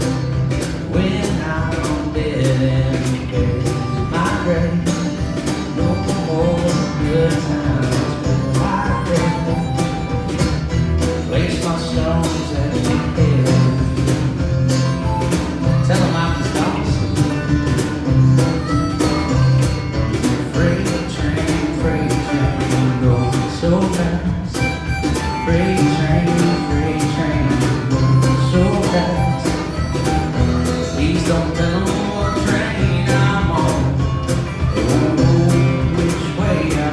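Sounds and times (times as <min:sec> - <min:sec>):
live band playing country-folk: 0:00.0 - 0:36.9.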